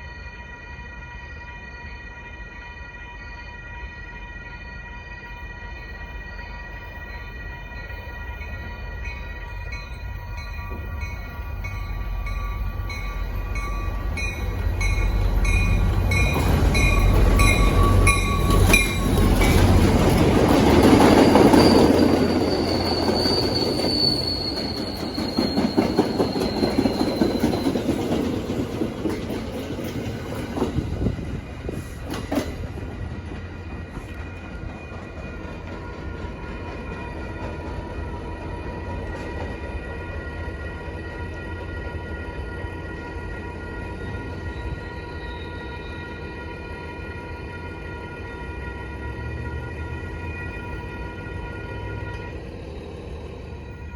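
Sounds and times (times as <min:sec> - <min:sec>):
crossing warning bells: 0:00.0 - 0:53.9
train wheels squealing: 0:00.0 - 0:53.9
train rumble: 0:03.8 - 0:53.9.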